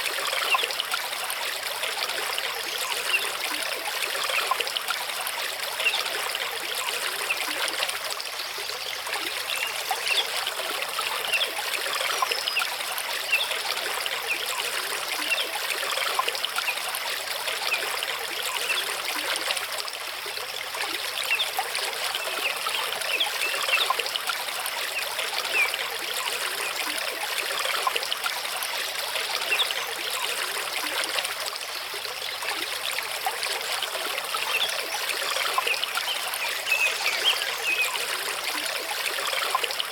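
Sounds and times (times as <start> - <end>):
stream rushing over rocks: 15.0 - 39.9.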